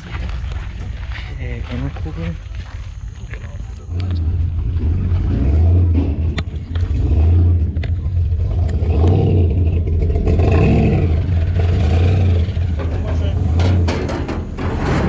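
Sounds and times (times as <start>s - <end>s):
truck engine revving: 3.9s - 15.0s.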